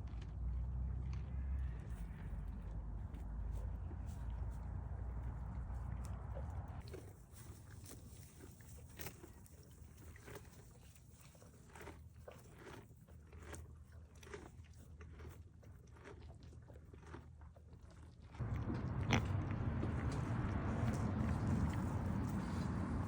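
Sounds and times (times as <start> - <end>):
animal crunching and chewing: 0.0 - 23.0
loud steady noise: 18.4 - 23.0.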